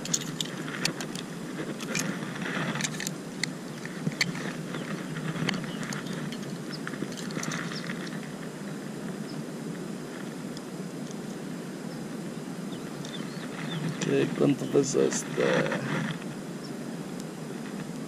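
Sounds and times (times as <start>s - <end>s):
light clicks and rustles: 0.0s - 8.4s
steady low hiss: 0.0s - 18.0s.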